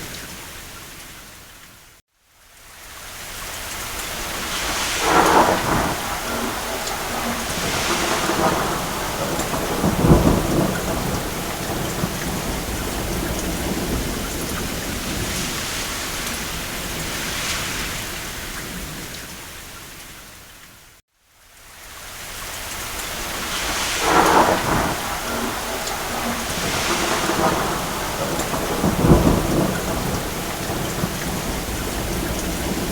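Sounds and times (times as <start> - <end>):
rain on a roof: 0.0 - 32.9
thunder rumbling: 4.0 - 19.6, 23.0 - 32.9.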